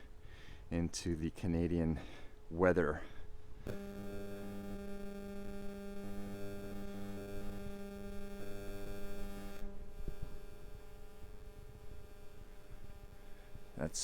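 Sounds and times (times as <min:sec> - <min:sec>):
electrical hum with buzzing: 0:00.0 - 0:14.0
low tones switching on and off: 0:03.6 - 0:14.0.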